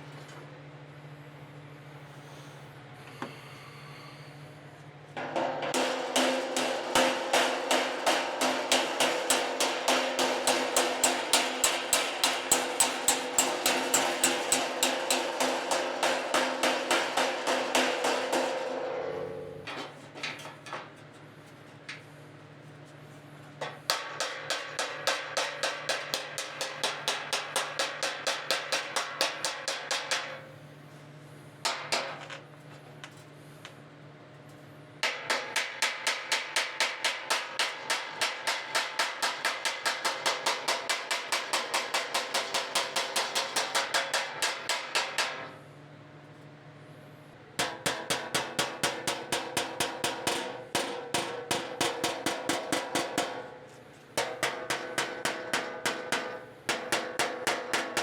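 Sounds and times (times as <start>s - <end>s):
hammer ringing on sheet steel: 5.2s - 19.8s, 23.6s - 30.6s, 35.0s - 45.6s, 47.6s - 58.0s.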